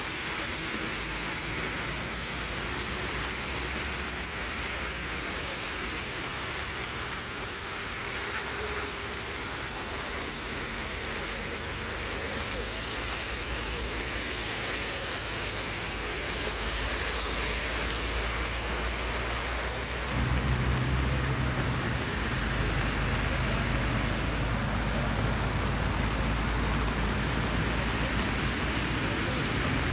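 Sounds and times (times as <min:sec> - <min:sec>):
rain: 0:00.0 - 0:29.9
low rumble: 0:20.1 - 0:26.4.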